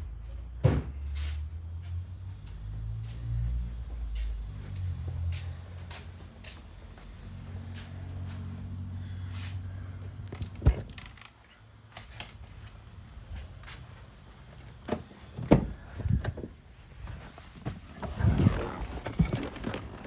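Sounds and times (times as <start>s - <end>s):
thuds and knocks: 0.6s - 1.0s.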